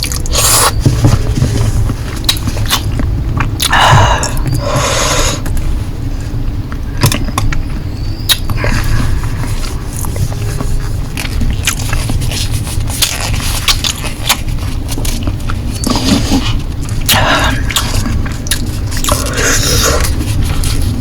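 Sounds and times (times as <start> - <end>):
steady low rumble: 0.0 - 21.0
noodle slurping: 8.6 - 21.0
wet chewing mouth clicks: 10.8 - 20.9.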